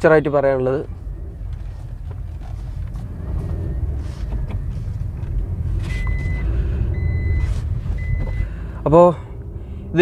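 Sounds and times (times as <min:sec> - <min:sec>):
car engine and road rumble: 0:00.0 - 0:10.0
high electronic beep: 0:05.9 - 0:08.4.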